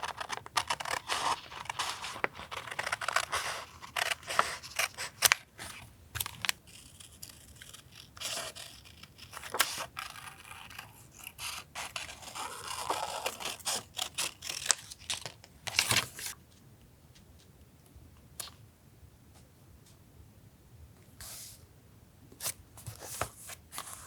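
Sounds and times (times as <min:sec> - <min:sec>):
paper being cut and handled: 0:00.0 - 0:16.4.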